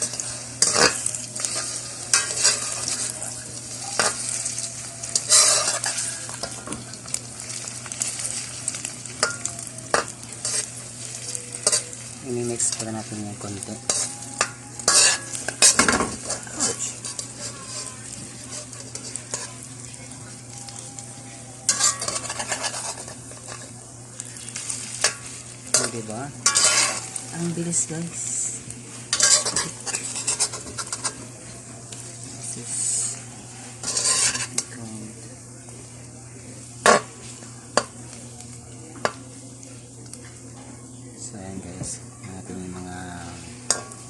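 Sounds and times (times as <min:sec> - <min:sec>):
spatula scraping a pan: 0:00.0 - 0:06.7, 0:07.6 - 0:19.7, 0:21.7 - 0:23.7, 0:24.6 - 0:27.2, 0:28.9 - 0:31.3, 0:32.6 - 0:34.7
food sizzling in a frying pan: 0:00.0 - 0:44.0.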